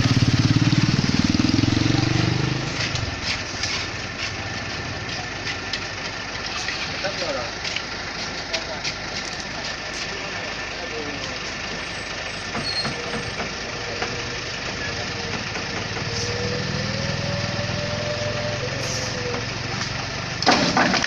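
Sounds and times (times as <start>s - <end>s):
diesel truck engine running: 0.0s - 21.0s
thin engine whine: 11.8s - 20.6s.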